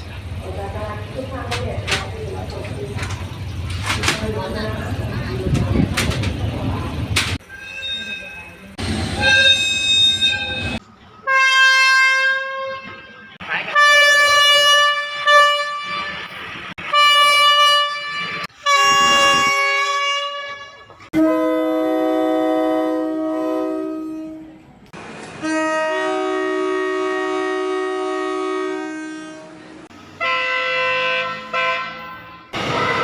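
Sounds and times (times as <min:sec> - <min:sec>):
train air horn blasts: 0:11.3 - 0:24.6, 0:25.4 - 0:33.0.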